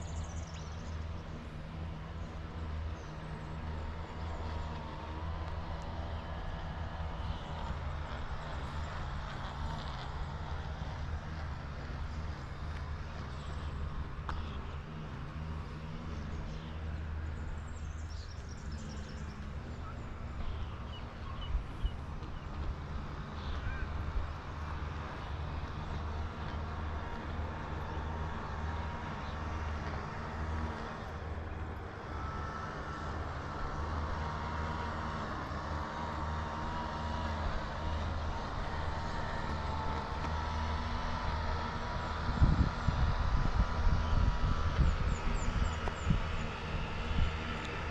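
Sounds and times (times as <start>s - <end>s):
wind on microphone: 41.8s - 47.9s.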